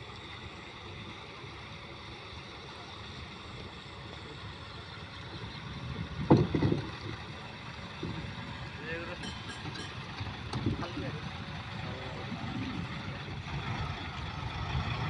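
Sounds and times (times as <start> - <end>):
boat engine rumble: 0.0 - 15.0
wind noise: 5.5 - 7.2.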